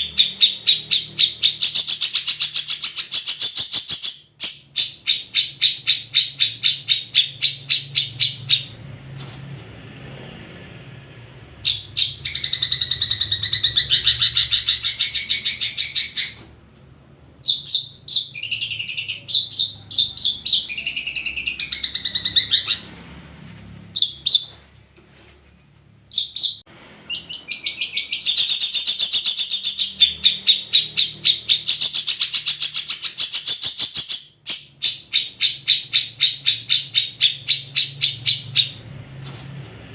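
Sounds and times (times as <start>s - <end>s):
bird singing trills and warbles: 0.0s - 8.8s, 11.6s - 16.4s, 17.4s - 22.9s, 26.1s - 38.8s.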